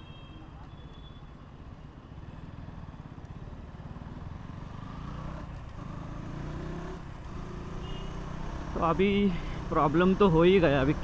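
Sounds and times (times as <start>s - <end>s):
motorcycle engine accelerating: 4.0s - 10.0s.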